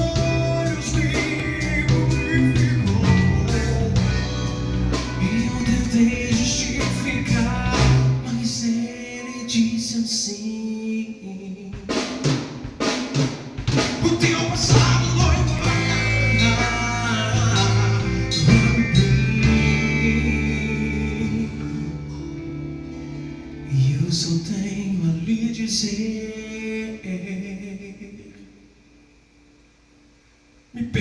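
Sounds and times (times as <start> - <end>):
band playing gospel instrumental: 0.0 - 9.5, 11.8 - 24.1.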